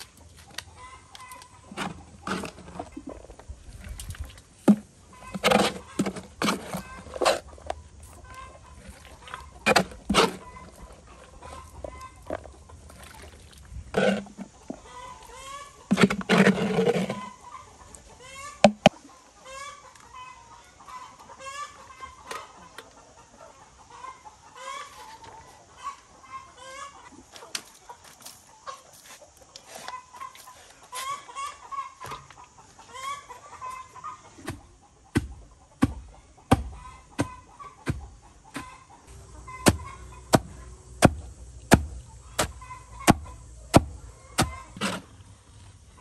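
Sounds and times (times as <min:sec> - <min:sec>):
birds calling: 0:36.3 - 0:44.9.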